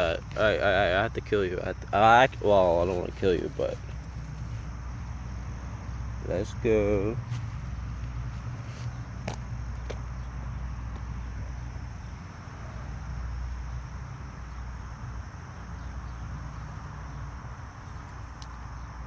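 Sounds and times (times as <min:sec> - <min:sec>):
sharp clicks: 0:18.0 - 0:18.6.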